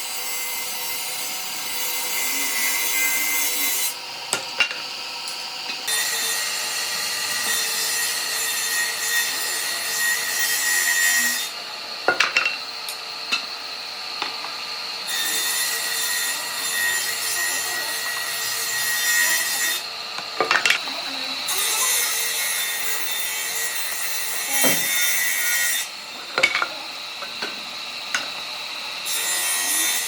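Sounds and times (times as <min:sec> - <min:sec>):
tool abrading wood: 0:24.5 - 0:28.3.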